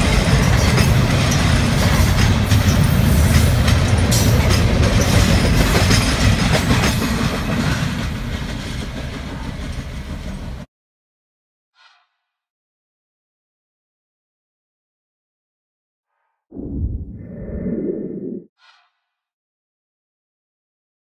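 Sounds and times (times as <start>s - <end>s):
freight train wheels rumbling: 0.0s - 10.7s.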